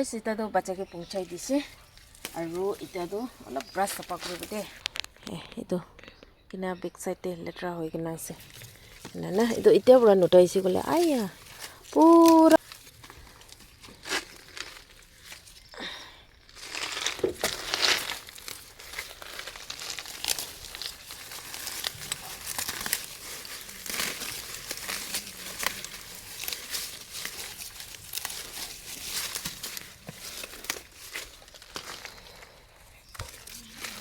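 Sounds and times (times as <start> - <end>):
leaves and stems rustling: 0.0 - 5.4, 8.2 - 34.0
brush snapping and tearing: 2.0 - 5.1, 8.5 - 15.6, 16.6 - 32.5, 33.1 - 34.0.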